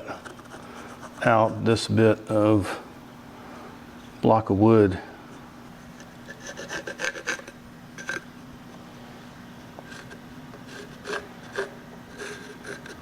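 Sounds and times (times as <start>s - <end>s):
faint steady hum: 0.0s - 13.0s
pencil scratching on wood: 0.2s - 1.3s, 6.3s - 8.2s, 9.9s - 13.0s.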